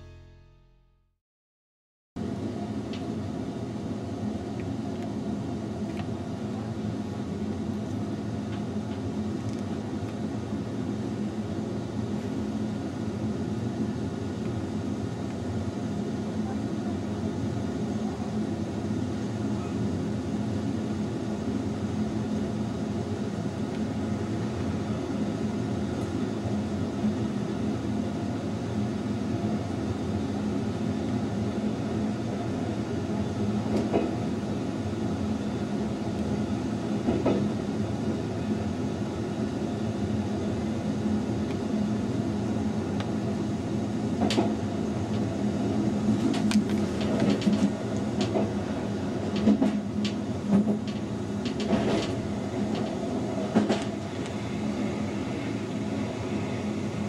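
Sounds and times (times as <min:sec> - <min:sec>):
train wheels rumbling on rails: 0:32.3 - 0:34.5, 0:35.7 - 0:38.6, 0:42.7 - 0:57.0.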